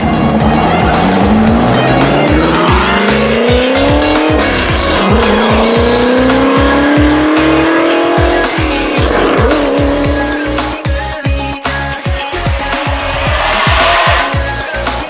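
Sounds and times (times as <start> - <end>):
background music with beat: 0.0 - 15.0
race car engine accelerating: 0.1 - 10.9.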